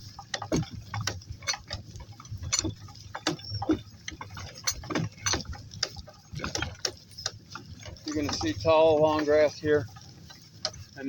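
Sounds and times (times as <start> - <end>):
hoof steps and harness clinks: 0.0 - 11.0
low steady rumble: 0.0 - 11.0.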